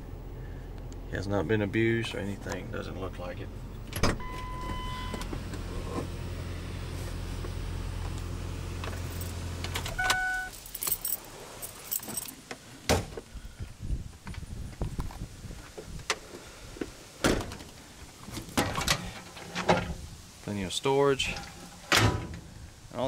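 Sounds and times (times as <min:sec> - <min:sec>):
truck engine humming: 0:00.0 - 0:12.2
keys jangling and clicking: 0:10.5 - 0:12.4.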